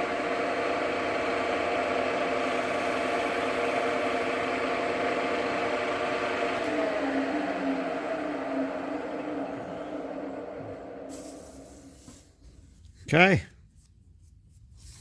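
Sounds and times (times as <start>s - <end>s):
lathe motor humming: 0.0s - 11.7s.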